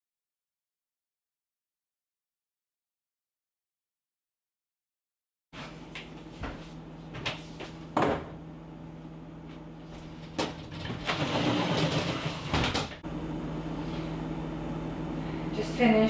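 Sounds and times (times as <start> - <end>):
steady low hum: 5.6 - 11.1, 13.0 - 16.0.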